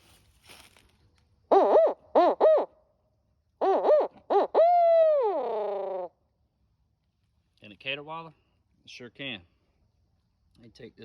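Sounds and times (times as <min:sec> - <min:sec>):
owl call hooting: 0:01.5 - 0:02.9, 0:03.6 - 0:06.2.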